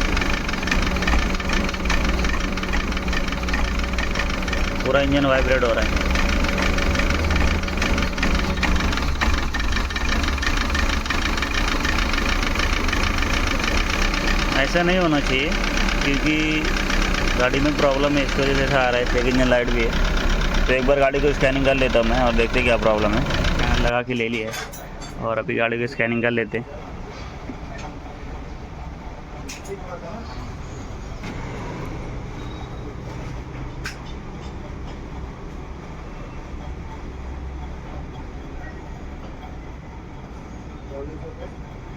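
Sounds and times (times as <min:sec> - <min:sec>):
engine idling roughly: 0:00.0 - 0:23.9.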